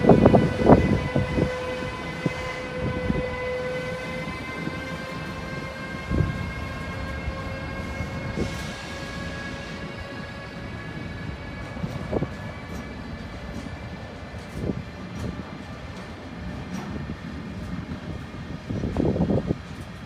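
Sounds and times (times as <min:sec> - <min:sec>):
train wheels rolling on rails: 0:00.0 - 0:20.0.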